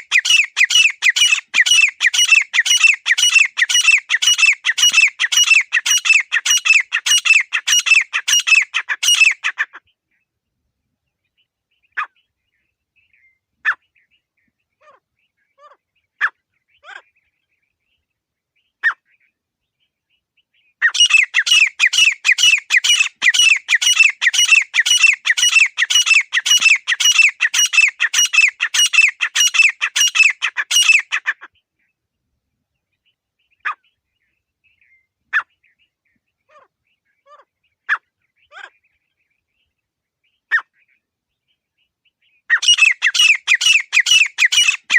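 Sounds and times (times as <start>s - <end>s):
francolin calling rapid notes: 0.0s - 9.6s, 20.8s - 31.3s, 42.5s - 44.9s.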